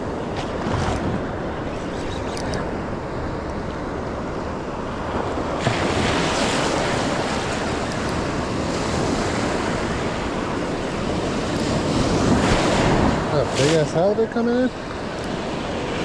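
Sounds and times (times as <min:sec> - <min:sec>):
ocean surf breaking: 0:02.6 - 0:16.0
wind buffeting microphone: 0:03.0 - 0:14.2.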